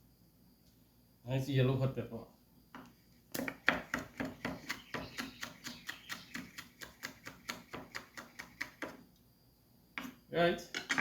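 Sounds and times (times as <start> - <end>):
knife chopping on cutting board: 3.4 - 9.0.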